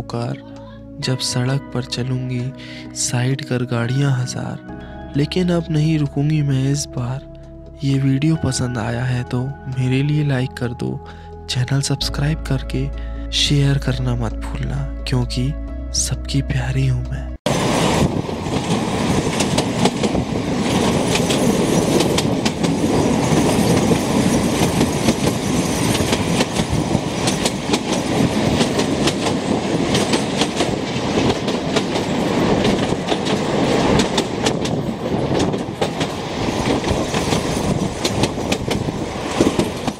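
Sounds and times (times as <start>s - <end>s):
train wheels rumbling and rattling: 17.5s - 39.9s.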